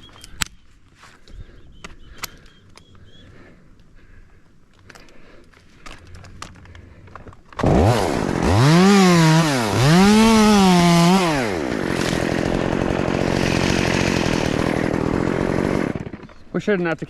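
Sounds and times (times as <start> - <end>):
chainsaw starting and revving: 7.6 - 16.5.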